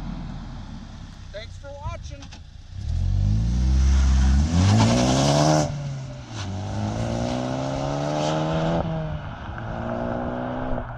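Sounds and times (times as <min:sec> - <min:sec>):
car engine accelerating: 0:02.2 - 0:10.9.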